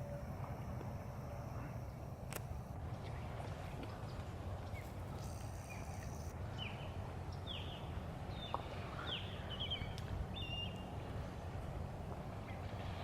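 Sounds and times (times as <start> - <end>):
birds chirping: 2.9 - 11.5.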